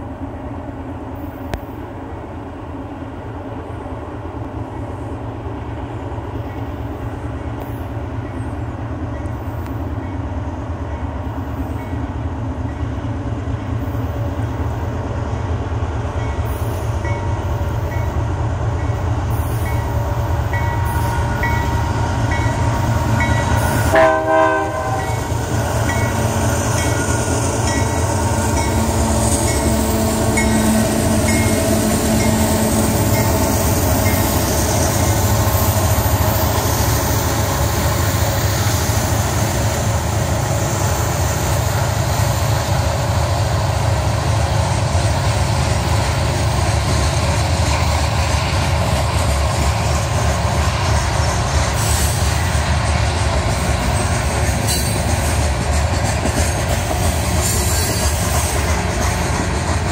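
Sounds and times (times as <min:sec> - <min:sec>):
freight train engine and wheel rumble: 0:00.0 - 0:59.9
train horn blast: 0:23.6 - 0:25.4.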